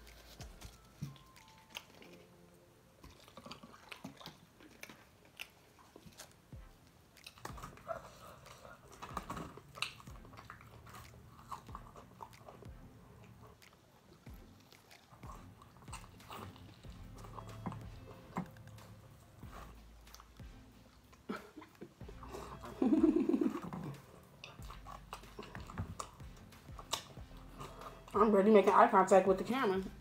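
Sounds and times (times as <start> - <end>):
person chewing and biting: 0.0 - 22.8, 23.6 - 28.1
mouth and teeth clicks: 3.0 - 28.2.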